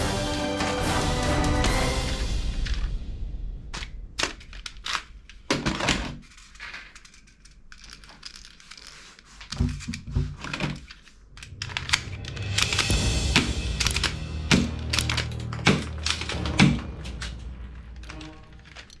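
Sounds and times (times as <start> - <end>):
handling clicks and knocks: 13.8 - 19.0.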